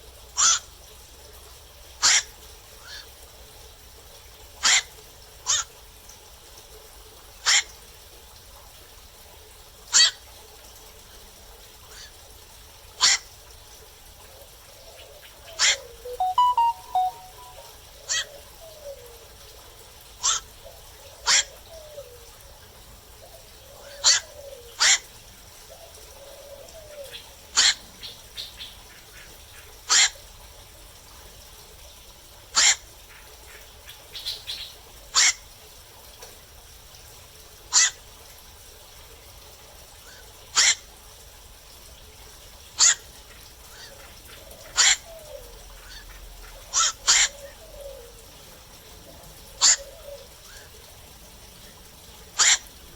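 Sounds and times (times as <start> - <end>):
herons harsh kwok calls: 52.4 - 52.7.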